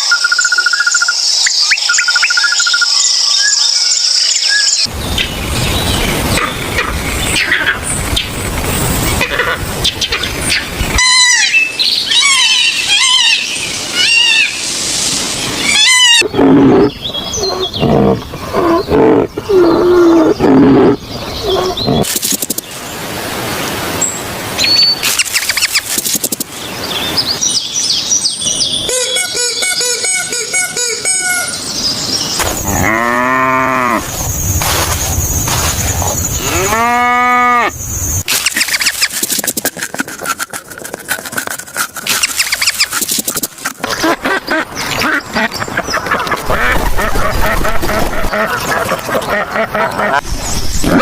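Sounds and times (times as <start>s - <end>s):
high falling chirps: 41.2s - 43.6s.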